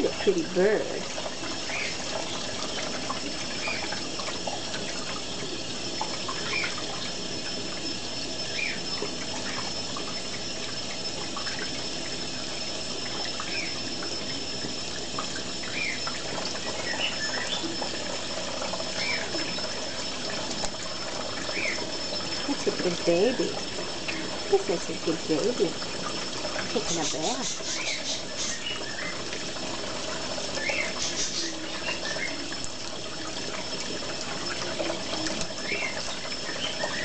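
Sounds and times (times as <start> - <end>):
tap water running: 0.0 - 37.0.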